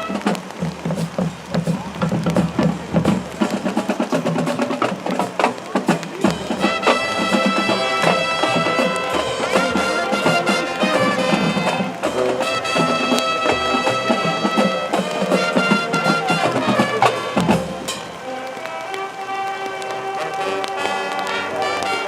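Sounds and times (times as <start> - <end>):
drum strokes: 0.0 - 22.0
marching band playing: 0.0 - 22.0
brass sustained chords: 6.5 - 22.0.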